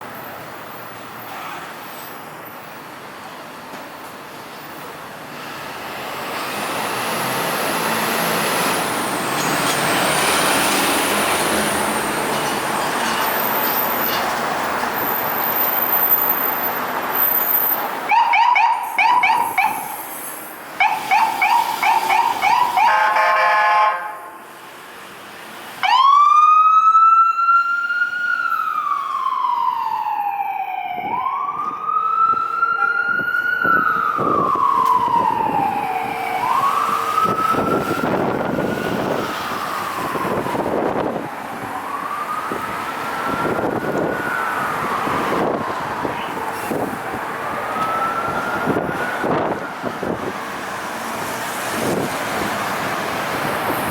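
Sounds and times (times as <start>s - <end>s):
traffic noise: 0.0s - 53.9s
fast pulsing siren: 18.1s - 20.0s, 20.8s - 23.3s, 25.8s - 50.4s
wailing siren: 18.1s - 20.1s, 20.8s - 24.4s, 25.8s - 52.2s.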